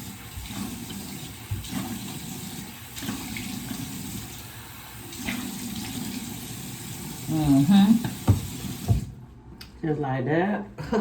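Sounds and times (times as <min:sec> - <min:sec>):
tap running: 0:00.0 - 0:04.2, 0:08.0 - 0:09.2
water splashing face washing: 0:00.0 - 0:09.2.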